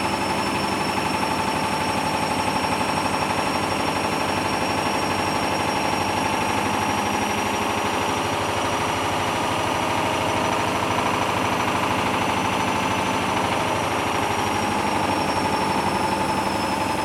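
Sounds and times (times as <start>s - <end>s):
washing machine drum motor whining: 0.0s - 17.0s.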